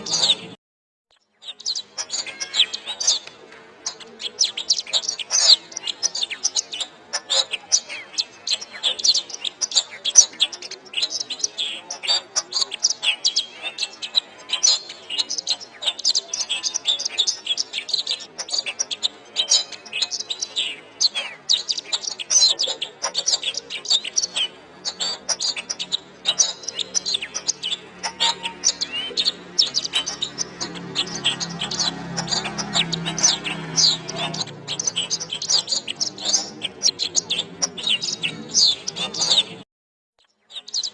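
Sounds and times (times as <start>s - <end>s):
canary singing: 0.0s - 0.6s, 1.2s - 39.6s, 40.2s - 40.9s.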